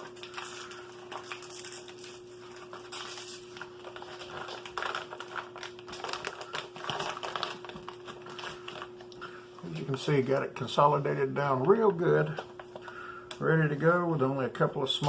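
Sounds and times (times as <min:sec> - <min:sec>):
plastic wrappers crinkling: 0:00.0 - 0:10.2.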